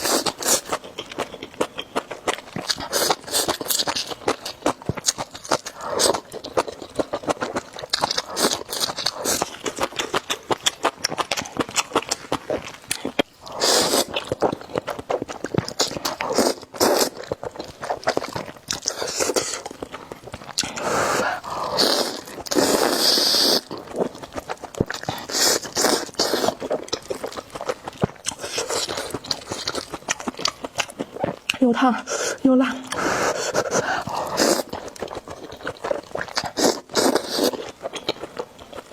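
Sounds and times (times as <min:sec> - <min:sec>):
wet chewing and smacking: 0:00.0 - 0:38.9
slurping noodles: 0:13.4 - 0:14.3, 0:15.6 - 0:19.8, 0:20.6 - 0:24.2, 0:25.0 - 0:27.4, 0:32.1 - 0:37.7.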